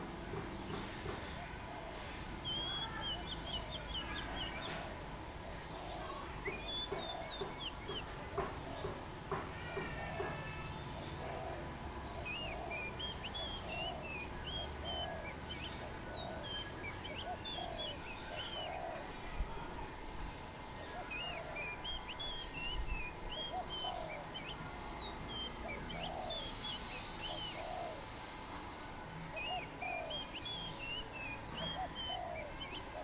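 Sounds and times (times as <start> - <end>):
high twittering bird chirps: 2.4 - 4.8, 6.4 - 8.1, 12.2 - 19.0, 20.9 - 28.0, 29.4 - 33.0
brief hiss: 26.3 - 29.1.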